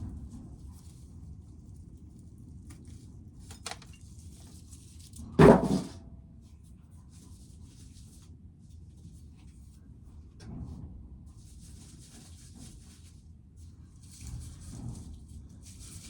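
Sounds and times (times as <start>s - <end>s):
loud knock: 5.4s - 6.0s.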